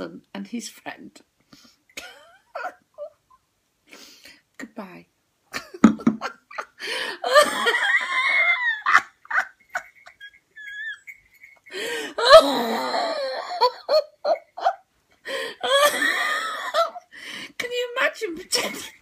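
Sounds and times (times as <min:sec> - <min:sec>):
woman laughing hard: 0:05.6 - 0:11.1, 0:11.7 - 0:17.0.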